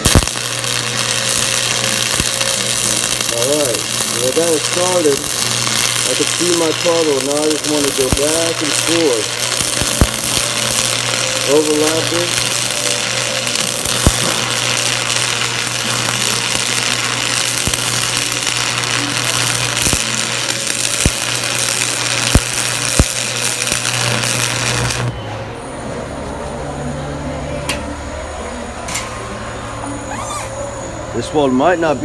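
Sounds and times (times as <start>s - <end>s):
welding arc crackling: 0.0s - 25.1s.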